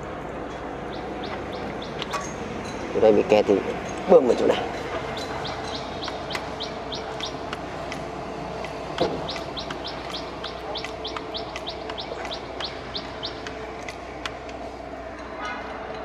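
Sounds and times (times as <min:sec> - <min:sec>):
steady machine hum: 0:00.0 - 0:16.0
bird calling high sliding notes: 0:05.0 - 0:13.8.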